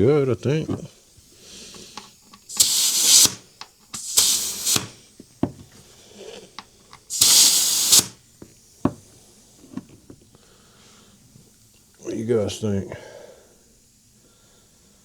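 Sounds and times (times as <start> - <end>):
short bursts of hissing: 1.2 - 5.2, 5.8 - 8.2.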